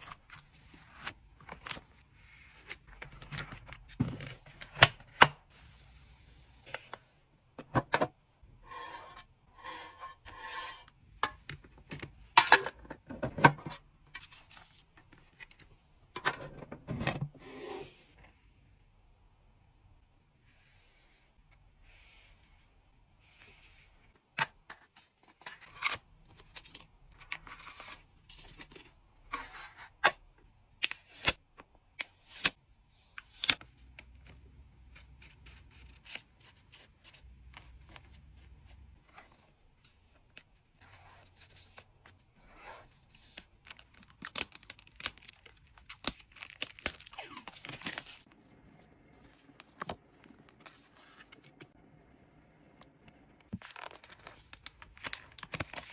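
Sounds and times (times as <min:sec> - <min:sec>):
plastic and tape rustling: 0:43.0 - 0:48.4, 0:53.5 - 0:55.9.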